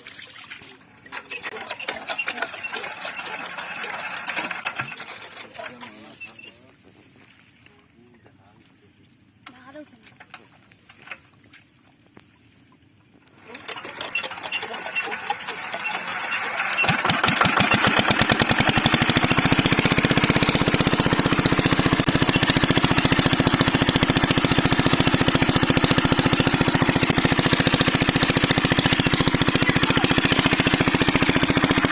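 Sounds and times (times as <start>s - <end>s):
diesel engine starting: 1.0s - 6.5s, 13.3s - 31.9s.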